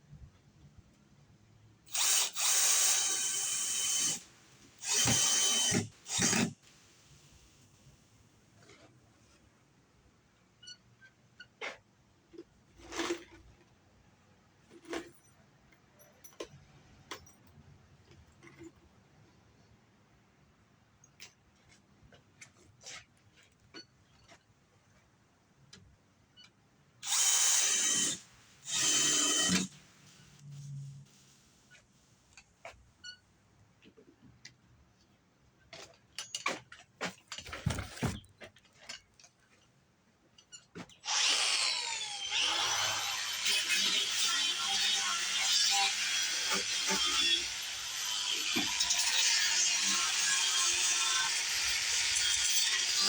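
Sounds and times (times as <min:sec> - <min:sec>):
power drill bursts: 0:01.9 - 0:06.6, 0:27.0 - 0:29.8, 0:41.0 - 0:53.0
electric drill running: 0:04.8 - 0:06.5, 0:27.0 - 0:29.7, 0:41.1 - 0:44.2.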